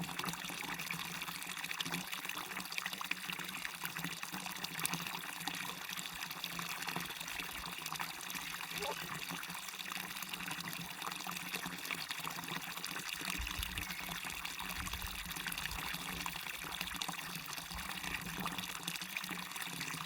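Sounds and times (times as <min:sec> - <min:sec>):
small waterfall splashing: 0:00.0 - 0:20.0
trickling water: 0:00.0 - 0:20.0.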